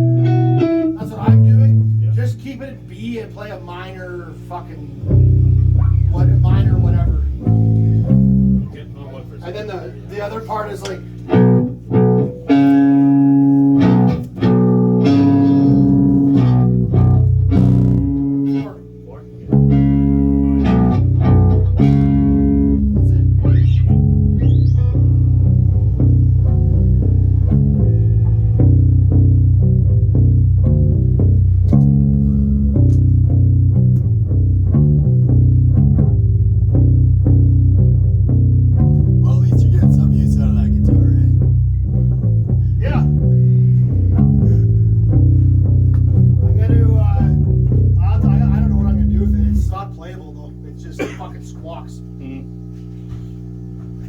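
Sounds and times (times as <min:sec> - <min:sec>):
electric guitar notes and chords: 0:00.0 - 0:01.9, 0:05.0 - 0:08.7, 0:11.2 - 0:49.7.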